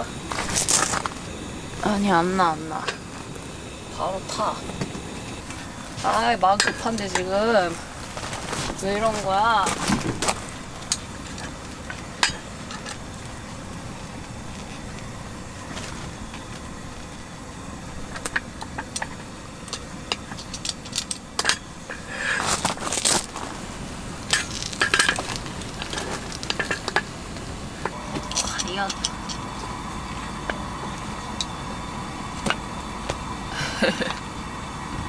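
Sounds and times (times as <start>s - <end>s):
steady cooking hiss: 0.0s - 35.0s
metal cookware clattering: 6.0s - 13.0s, 18.1s - 22.1s, 24.2s - 30.7s.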